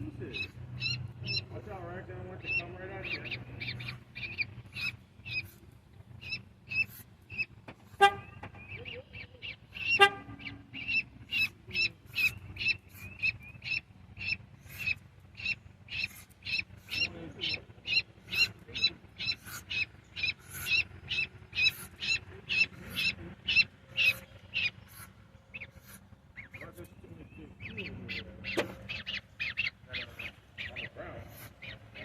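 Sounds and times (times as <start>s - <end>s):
goslings peeping: 0.0s - 32.0s
deep honk: 7.9s - 8.6s, 9.8s - 10.8s.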